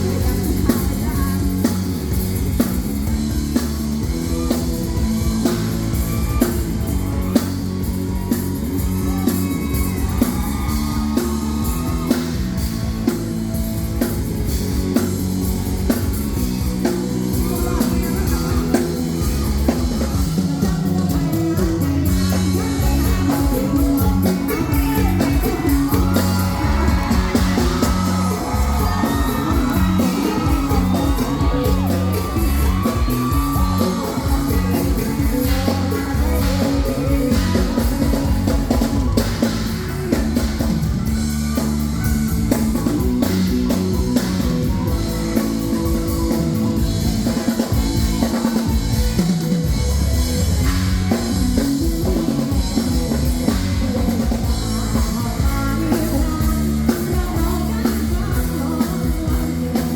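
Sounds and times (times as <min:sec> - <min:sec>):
person singing: 0:00.0 - 0:13.2, 0:16.8 - 0:59.9
live rock band playing: 0:00.0 - 0:59.9.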